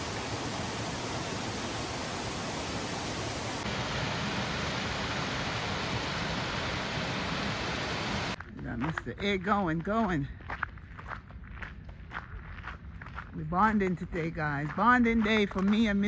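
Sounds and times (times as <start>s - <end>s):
steady rushing noise: 0.0s - 8.4s.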